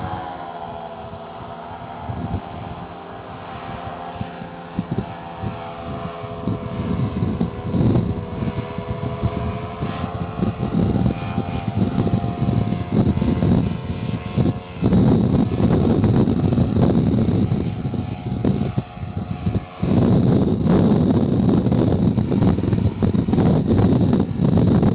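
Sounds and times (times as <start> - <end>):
faint droning hum: 0.0 - 24.9
wind buffeting microphone: 0.0 - 24.9.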